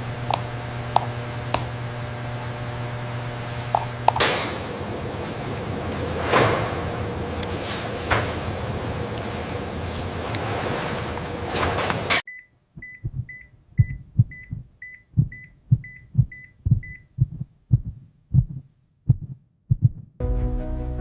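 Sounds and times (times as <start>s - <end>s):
medical monitor high beeps: 12.3s - 17.1s
heartbeat thumping: 12.8s - 20.2s.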